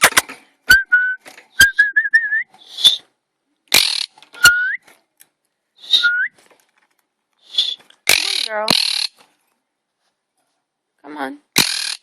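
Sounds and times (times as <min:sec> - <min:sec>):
parrot whistling: 0:00.7 - 0:03.1, 0:04.4 - 0:04.8, 0:05.8 - 0:06.4, 0:07.4 - 0:09.1
parrot chirps: 0:02.6 - 0:03.1, 0:05.8 - 0:06.3, 0:07.4 - 0:09.2
sharp clicks: 0:07.4 - 0:09.2.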